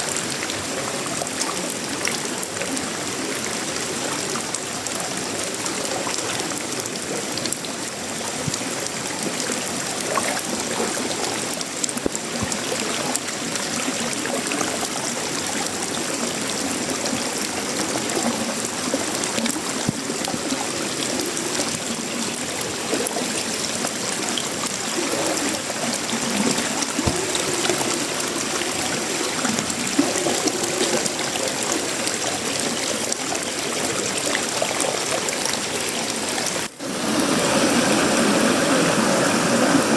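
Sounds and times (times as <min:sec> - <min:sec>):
rain on a metal roof: 0:00.0 - 0:39.9
runoff water trickling: 0:00.0 - 0:39.9.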